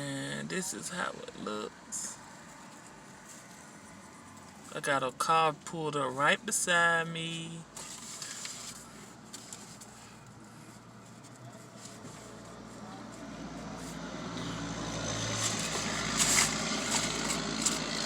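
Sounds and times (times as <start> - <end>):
car engine running: 7.7 - 18.0.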